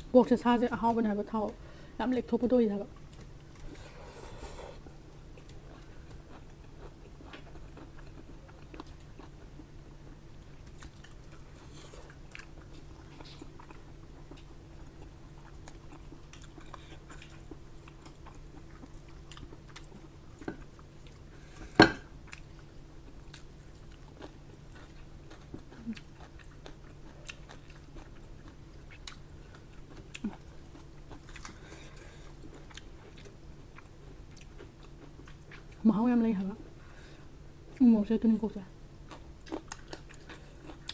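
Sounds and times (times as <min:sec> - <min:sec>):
faint steady hum: 0:00.0 - 0:40.9
close chewing and biting: 0:04.7 - 0:21.6, 0:22.2 - 0:35.8, 0:39.0 - 0:40.9.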